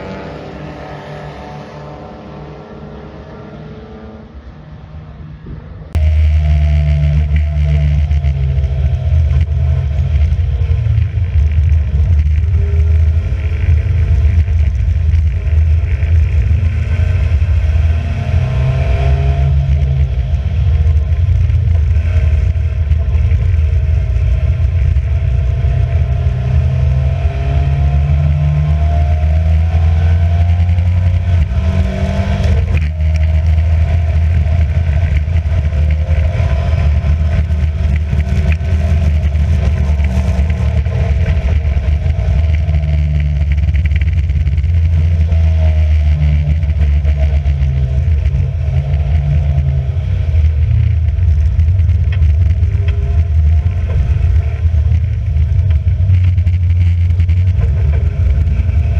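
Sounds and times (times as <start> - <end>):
racing car engine revving: 0.0 - 58.9.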